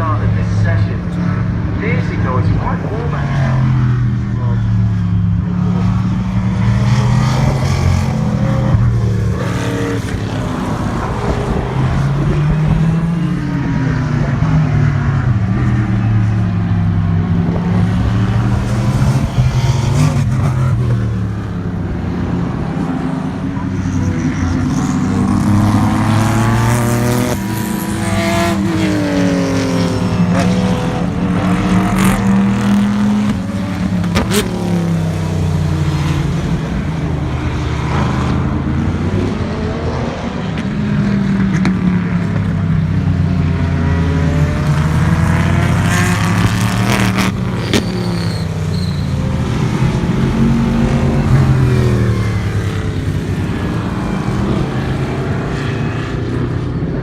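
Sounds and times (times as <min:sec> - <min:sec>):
race cars passing at speed: 0:00.0 - 0:57.0.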